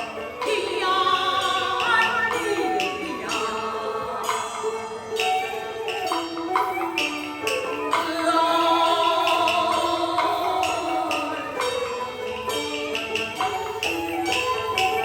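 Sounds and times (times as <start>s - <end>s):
wavering melodic line: 0.0s - 6.4s
struck percussion strokes: 0.0s - 15.0s.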